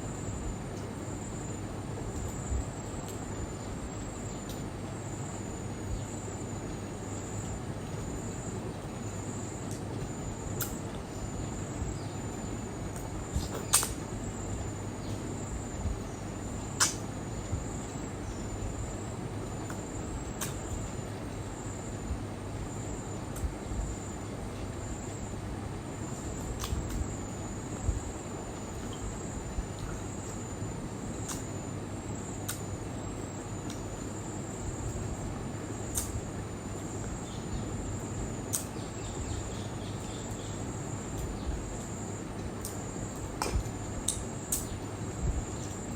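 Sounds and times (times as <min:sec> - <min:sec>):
insect trill: 0:00.0 - 0:45.9.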